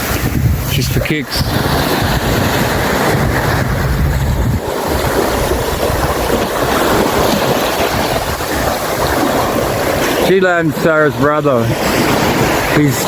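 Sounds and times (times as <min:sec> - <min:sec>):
surf washing on beach: 0:00.0 - 0:13.0
wind buffeting microphone: 0:00.0 - 0:13.0.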